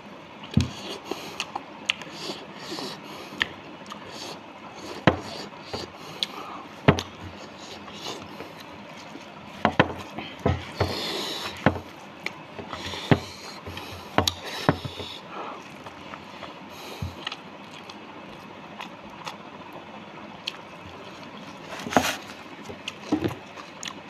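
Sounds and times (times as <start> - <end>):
chewing and lip smacking: 17.2 - 19.4, 20.4 - 21.6, 22.6 - 24.0.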